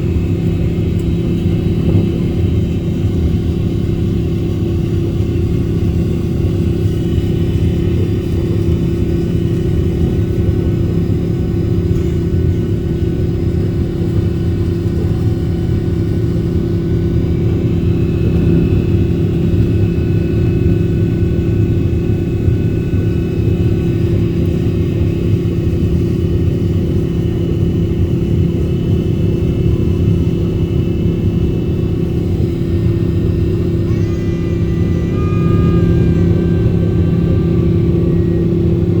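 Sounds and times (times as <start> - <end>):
airliner jet engine taking off: 0.0 - 39.0
faint higher tones: 33.8 - 39.0.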